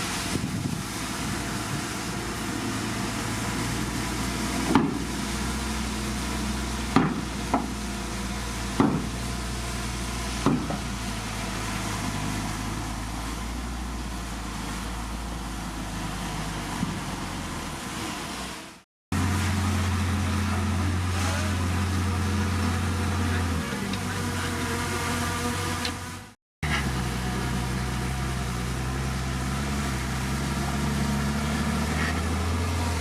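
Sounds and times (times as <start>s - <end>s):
bulldozer diesel engine running: 0.0s - 25.2s, 26.1s - 33.0s
machine knocks: 6.9s - 7.7s, 8.8s - 9.2s, 10.4s - 10.8s.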